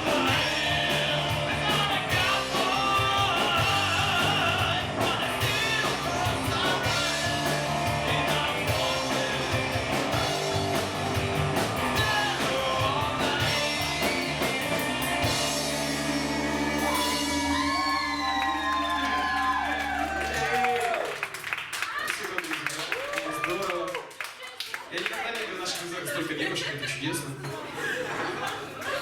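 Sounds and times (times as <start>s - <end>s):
person singing: 0.0s - 10.8s, 11.9s - 15.6s
drum kit: 0.0s - 19.4s
electric guitar: 0.0s - 20.1s.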